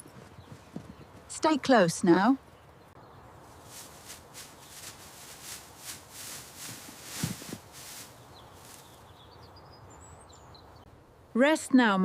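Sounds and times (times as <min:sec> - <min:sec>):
small birds chirping: 0:00.0 - 0:11.0
heavy hoof thud: 0:03.5 - 0:09.0
horse hooves stepping: 0:03.5 - 0:09.0.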